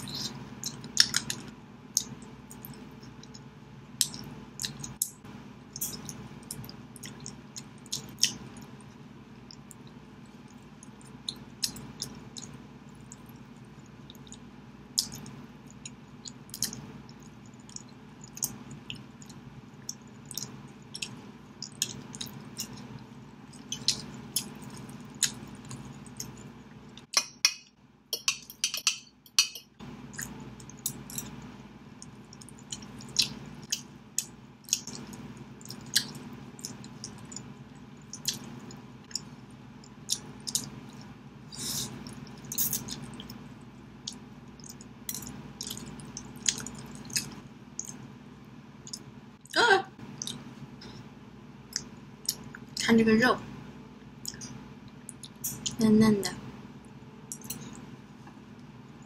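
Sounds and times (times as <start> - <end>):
chewing with mouth clicks: 0.0 - 27.2, 28.2 - 48.0, 48.8 - 51.0, 51.7 - 52.8, 54.0 - 55.8, 56.8 - 58.4.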